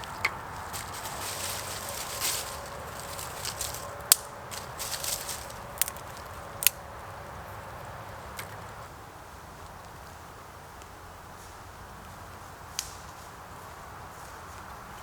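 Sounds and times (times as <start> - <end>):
soft handling noises: 0.0 - 6.7.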